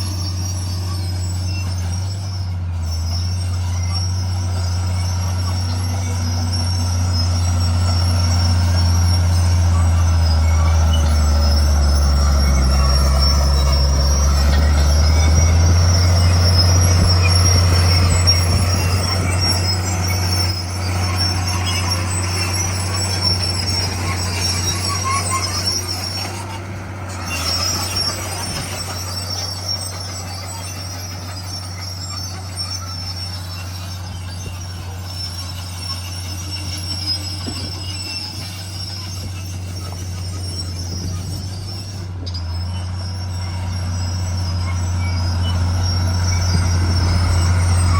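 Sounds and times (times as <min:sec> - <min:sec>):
bulldozer diesel engine running: 0:00.0 - 0:47.9
steel tracks squealing: 0:00.0 - 0:47.9.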